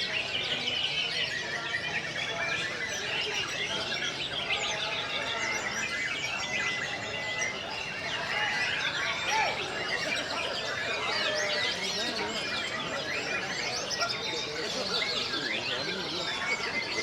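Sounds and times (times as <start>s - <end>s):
many songbirds singing: 0.0s - 17.0s.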